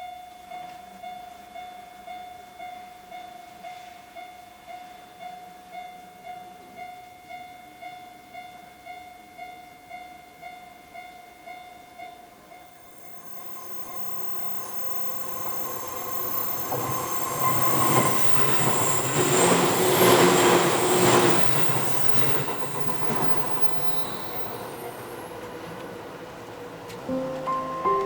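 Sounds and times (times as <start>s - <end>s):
electric train passing: 10.9s - 28.0s
wheel squeal: 12.8s - 25.8s.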